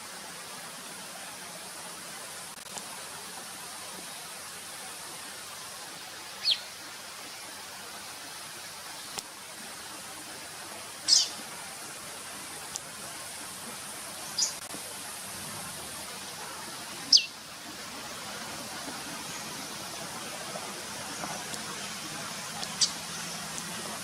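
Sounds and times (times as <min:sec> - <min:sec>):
background hiss: 0:00.0 - 0:24.0
bird sharp calls: 0:11.1 - 0:11.4, 0:17.1 - 0:17.4, 0:22.7 - 0:23.1.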